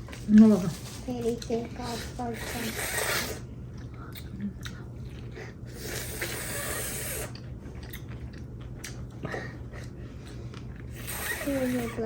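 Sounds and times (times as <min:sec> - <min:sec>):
chewing clicks and smacks: 0:03.7 - 0:05.4, 0:07.3 - 0:10.9.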